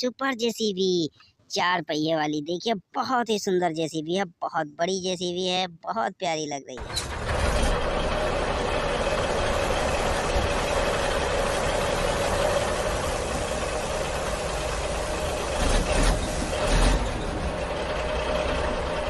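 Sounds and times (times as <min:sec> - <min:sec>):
engine rumble and hum: 0:06.8 - 0:19.0.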